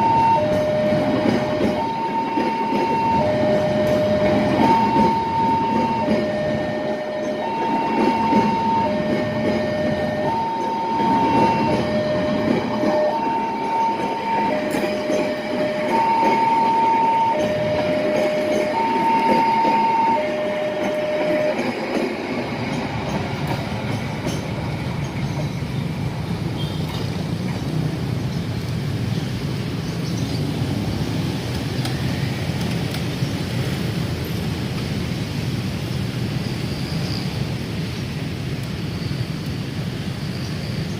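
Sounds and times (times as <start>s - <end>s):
two-tone warning signal: 0.0s - 21.9s
train rail rumble: 0.0s - 40.9s.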